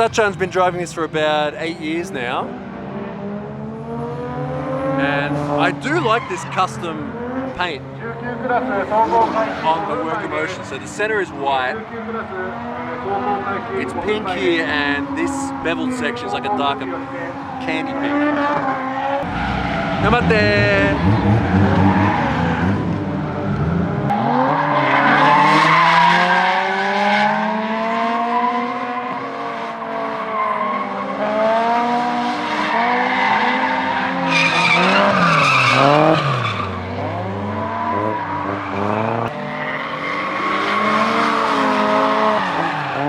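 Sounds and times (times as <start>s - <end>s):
car engines revving: 0.0s - 43.0s
tyres squealing: 33.1s - 37.2s.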